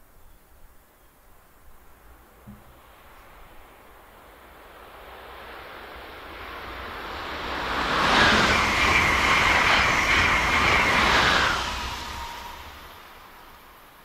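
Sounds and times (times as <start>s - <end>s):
train wheels rushing on rail: 4.6s - 14.0s
high steady whine: 6.5s - 13.9s.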